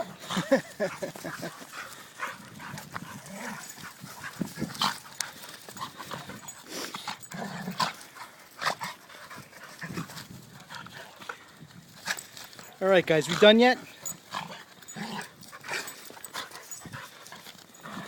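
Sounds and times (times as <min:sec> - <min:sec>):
dogs grunting and growling: 0:00.0 - 0:11.4, 0:12.1 - 0:18.0
dogs scuffling: 0:00.3 - 0:18.0.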